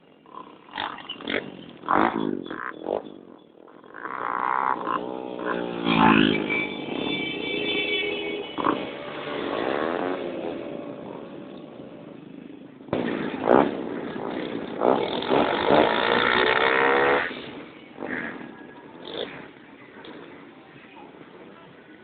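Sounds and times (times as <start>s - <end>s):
motorcycle engines revving: 0.0s - 22.0s.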